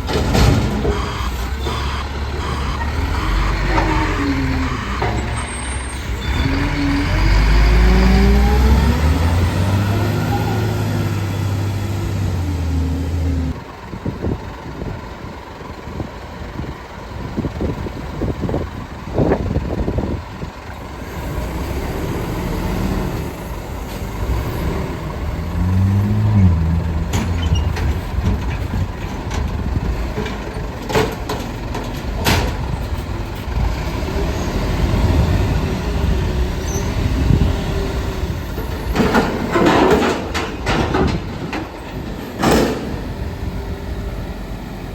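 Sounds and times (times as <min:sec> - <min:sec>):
metal clanks and knocks: 0:00.0 - 0:01.8, 0:26.4 - 0:33.6, 0:38.6 - 0:43.0
garbage truck diesel engine: 0:00.0 - 0:44.9.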